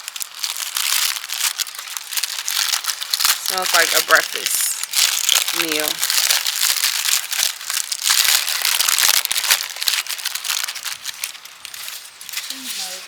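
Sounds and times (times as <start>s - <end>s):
foil crinkling: 0.0s - 13.0s.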